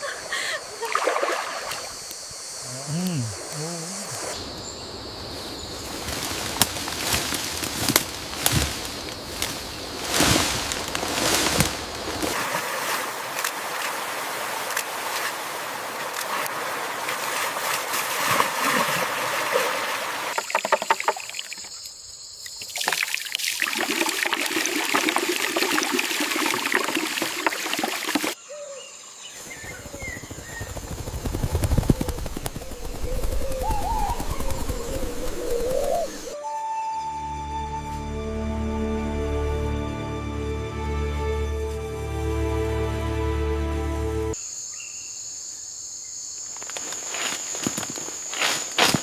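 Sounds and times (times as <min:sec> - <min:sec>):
water trickling and splashing: 0:00.8 - 0:02.2, 0:05.9 - 0:21.8, 0:22.4 - 0:28.4.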